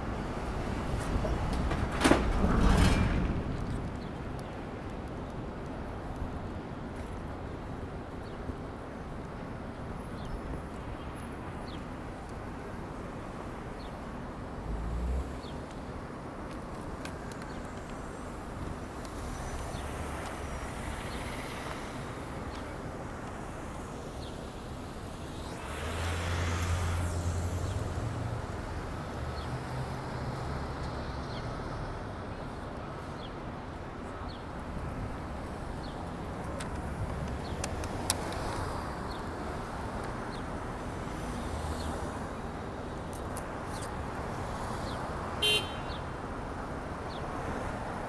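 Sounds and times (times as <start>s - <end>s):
traffic hiss: 16.5s - 48.0s
vehicle passing: 24.7s - 30.7s.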